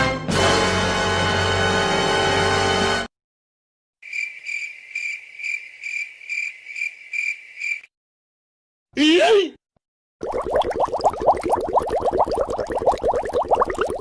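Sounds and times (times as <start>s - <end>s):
cricket chirps sound effect: 4.0s - 7.9s.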